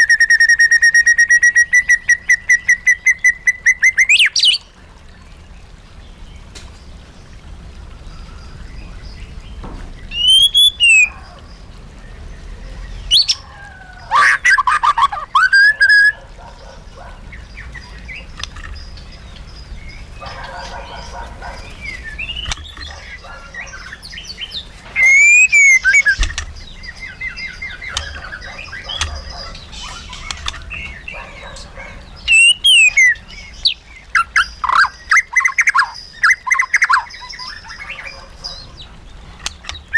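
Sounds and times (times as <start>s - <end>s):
bird whistling song: 0.0s - 4.6s, 10.1s - 11.4s, 13.0s - 13.4s, 14.1s - 16.2s, 20.2s - 38.7s
bird twittering: 10.1s - 11.5s, 14.1s - 38.9s.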